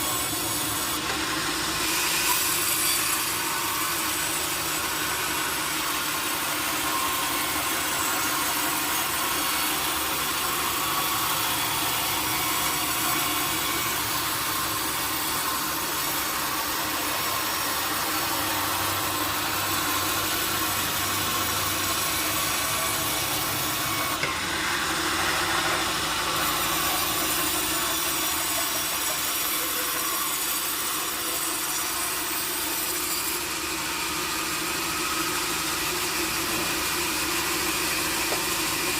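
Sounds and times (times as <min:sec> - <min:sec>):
sawmill saw cutting wood: 0:00.0 - 0:38.9.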